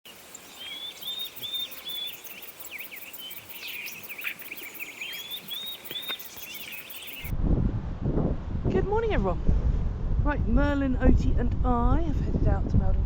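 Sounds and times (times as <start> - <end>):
bird twittering: 0.1 - 7.3
songbird whistled notes: 0.3 - 7.3.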